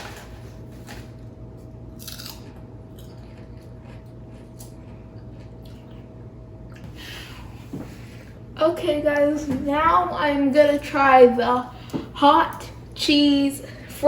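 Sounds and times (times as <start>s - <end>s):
chips being chewed: 1.9s - 6.1s.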